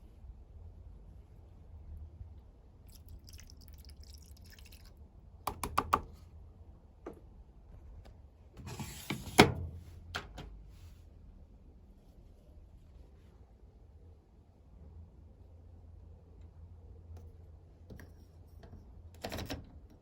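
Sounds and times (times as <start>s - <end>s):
washing machine hum: 0.0s - 10.8s.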